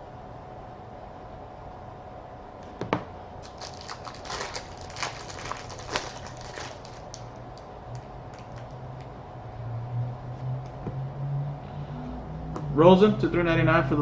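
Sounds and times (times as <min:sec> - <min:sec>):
packaging crinkling: 0:03.4 - 0:08.8.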